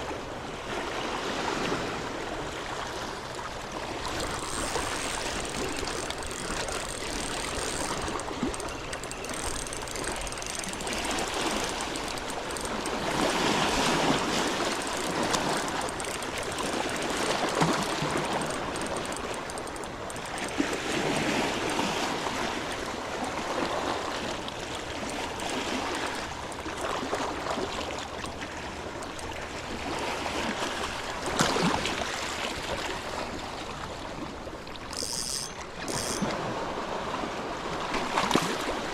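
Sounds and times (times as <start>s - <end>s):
small waves washing on shore: 0.0s - 38.9s
sharp click: 14.4s - 20.6s, 34.9s - 36.3s.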